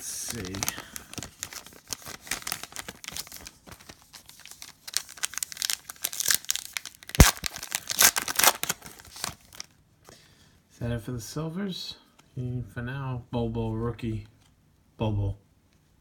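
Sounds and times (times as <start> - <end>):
foil pack crinkling: 0.0 - 9.8.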